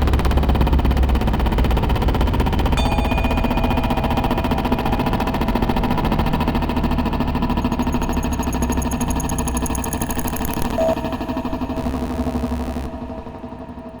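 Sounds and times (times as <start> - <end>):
high pulsing electronic tones: 2.8 - 13.8
electronic low rumble with flutter: 3.0 - 14.0.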